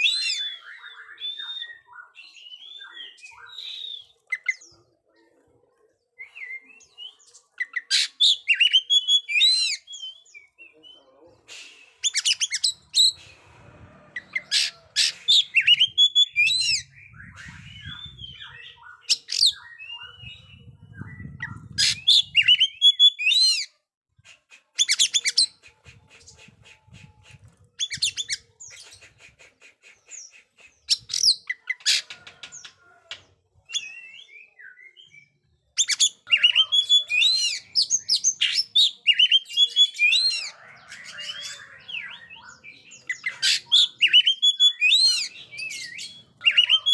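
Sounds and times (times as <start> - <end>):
bird singing whistles and chirps: 0.0 - 4.7, 6.2 - 13.2, 14.2 - 23.7, 33.7 - 46.9.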